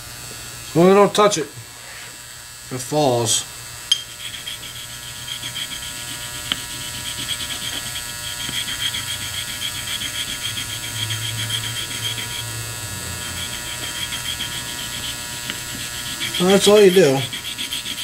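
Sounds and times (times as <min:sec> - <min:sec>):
electric vibrator hum: 0:00.0 - 0:18.0.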